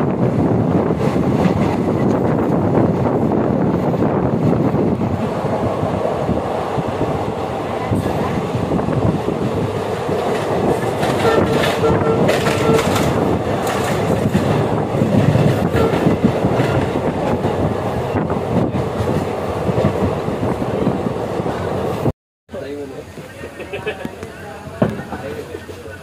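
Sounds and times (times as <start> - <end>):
train wheels rumbling on rails: 0.0 - 22.1, 23.3 - 26.0
clickety-clack of rail joints: 0.8 - 3.2, 9.7 - 22.1.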